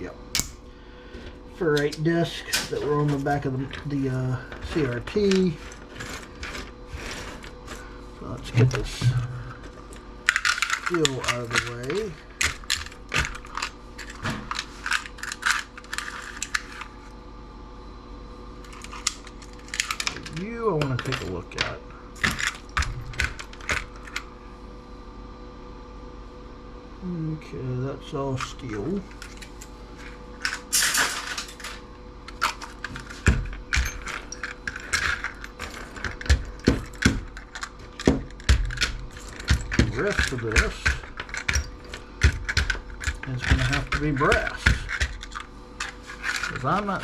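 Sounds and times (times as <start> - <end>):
faint steady hum: 0.0 - 47.0
small metal parts clinking: 3.0 - 7.8, 9.6 - 16.8, 29.2 - 47.0.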